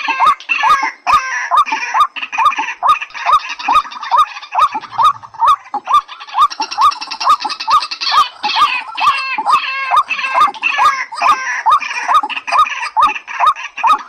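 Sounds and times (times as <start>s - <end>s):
waterhen calls: 0.0s - 14.0s.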